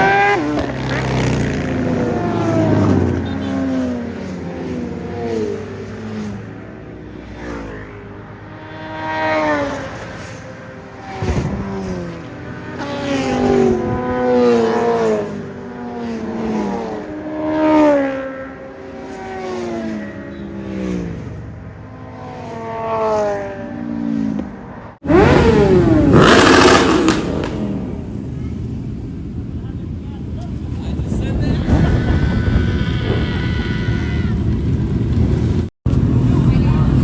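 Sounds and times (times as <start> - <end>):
sport bike engines revving: 0.0 - 37.0
engine pulling hard: 29.4 - 37.0.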